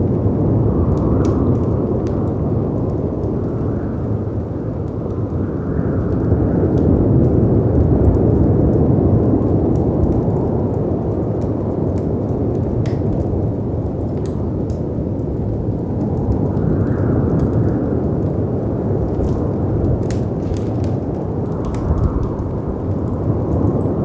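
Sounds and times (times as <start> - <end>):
wind: 0.0 - 24.0
fireplace crackling: 9.7 - 24.0.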